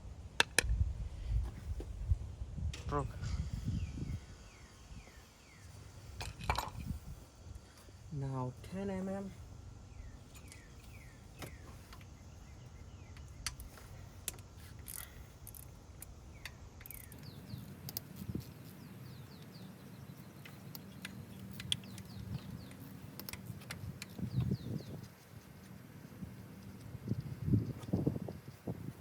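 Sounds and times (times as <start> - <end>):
small birds chirping: 2.9 - 29.0
wrench clicking on metal: 16.8 - 18.1.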